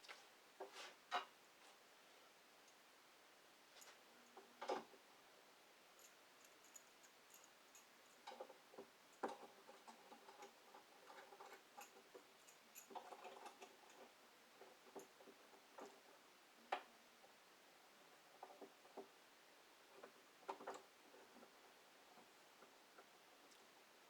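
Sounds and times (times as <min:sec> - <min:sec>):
faint clicks and light knocks: 0:03.7 - 0:05.0, 0:06.0 - 0:19.2, 0:19.8 - 0:23.9.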